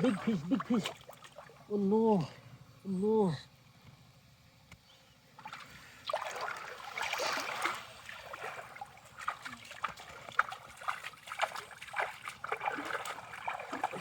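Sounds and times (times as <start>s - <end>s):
water splashing and trickling: 0.0s - 2.0s, 5.4s - 14.0s
water dripping: 8.3s - 14.0s.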